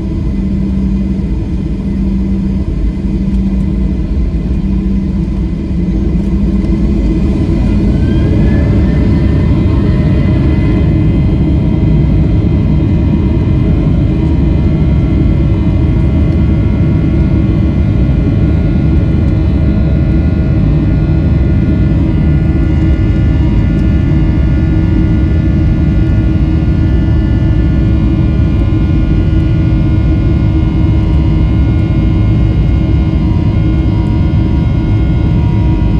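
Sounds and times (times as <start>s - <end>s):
jet engine cabin rumble: 0.0s - 35.9s
jet engine whining tones: 0.1s - 17.0s.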